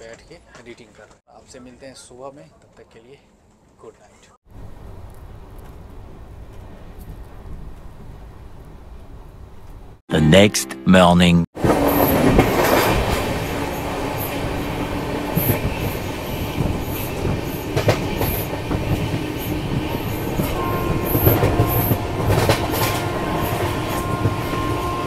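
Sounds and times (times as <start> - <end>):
train wheels rumbling on rails: 11.6 - 25.0.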